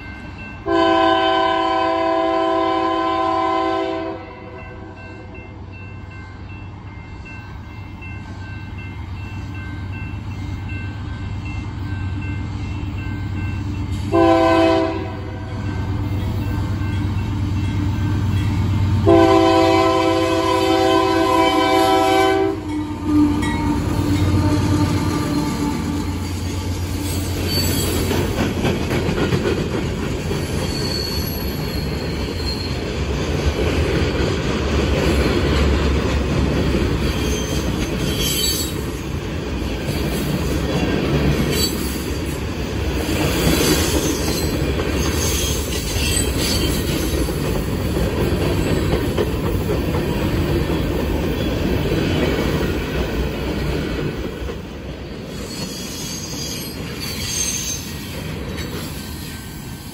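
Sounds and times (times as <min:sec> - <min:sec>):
train wheels rumbling on rails: 0:00.0 - 0:59.9
high wheel squeal: 0:24.2 - 0:28.1, 0:30.6 - 0:32.8, 0:37.2 - 0:38.8, 0:55.3 - 0:58.1.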